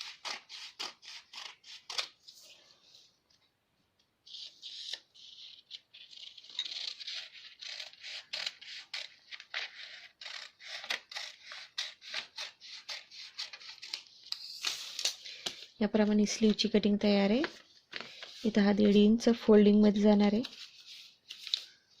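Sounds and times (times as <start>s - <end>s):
scissors snipping paper: 4.3s - 15.2s
paper rustle: 17.3s - 19.1s.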